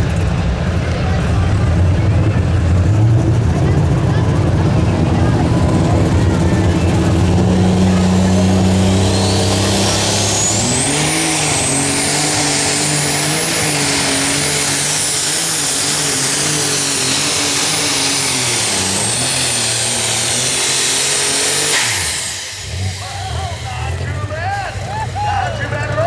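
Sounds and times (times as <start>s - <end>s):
diesel tractor engine labouring: 0.0s - 26.0s
turbocharger whistle: 6.3s - 26.0s.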